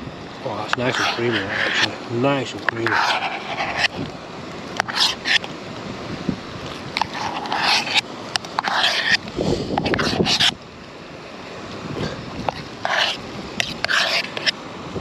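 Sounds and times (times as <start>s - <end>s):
spoon scraping metal pot: 0.8s - 2.0s, 2.8s - 4.0s, 4.8s - 5.5s, 7.0s - 8.0s, 8.6s - 9.2s, 9.8s - 10.5s, 12.6s - 14.6s.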